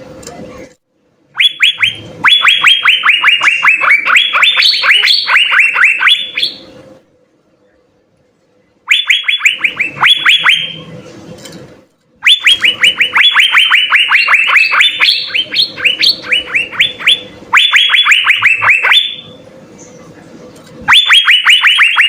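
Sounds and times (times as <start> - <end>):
bird whistling downward notes: 1.4 - 6.8, 12.2 - 19.3, 20.9 - 22.0.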